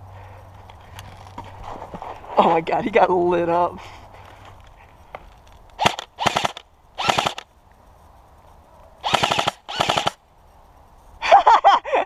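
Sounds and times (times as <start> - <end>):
airsoft rifle full-auto bursts: 5.8 - 7.5, 9.0 - 10.2.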